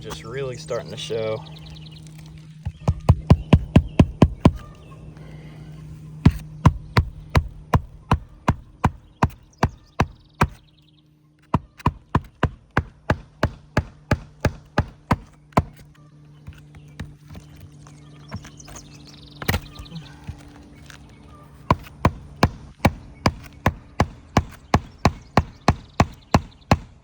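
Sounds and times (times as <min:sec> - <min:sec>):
low hum: 0:00.0 - 0:27.0
hammer striking roofing nails: 0:02.6 - 0:04.7, 0:06.2 - 0:10.7, 0:11.4 - 0:17.7, 0:21.7 - 0:27.0.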